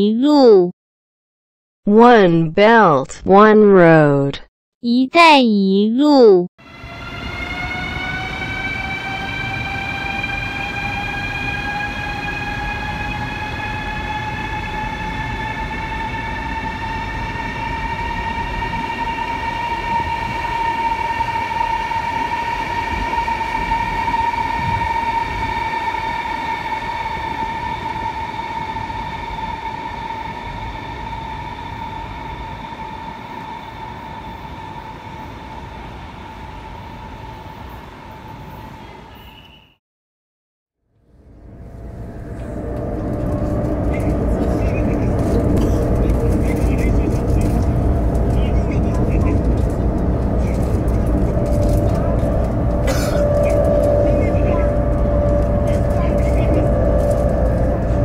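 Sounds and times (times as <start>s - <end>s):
train traction motors whining: 6.6s - 38.5s, 41.2s - 58.0s
wheels rumbling on track: 41.1s - 58.0s.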